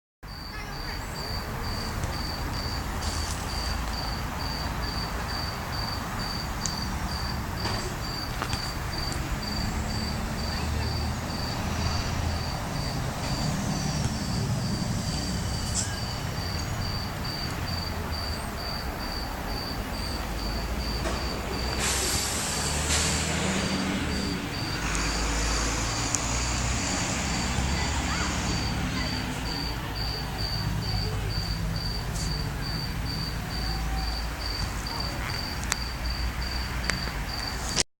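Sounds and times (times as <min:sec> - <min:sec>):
cricket chirping: 0:00.3 - 0:37.8
hiss: 0:21.6 - 0:27.6.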